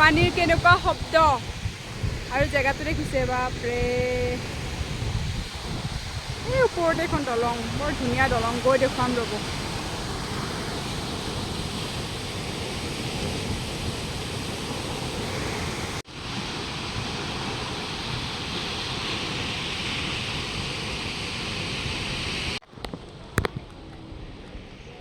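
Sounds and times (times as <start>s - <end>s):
waterfall roaring: 0.0s - 1.5s, 6.2s - 22.6s.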